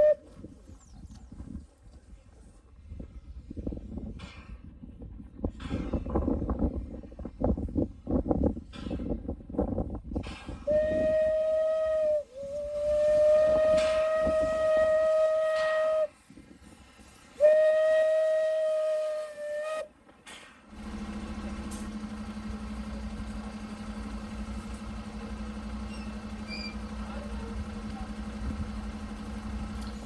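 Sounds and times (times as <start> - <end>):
steam locomotive whistle blasts: 0.0 - 0.3, 10.7 - 16.2, 17.4 - 19.9
low engine hum: 20.7 - 30.0.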